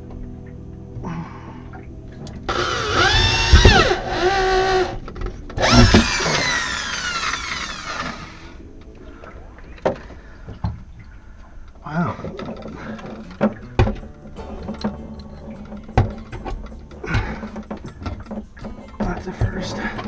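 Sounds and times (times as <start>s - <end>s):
power drill whine: 2.5s - 5.0s, 5.6s - 8.6s.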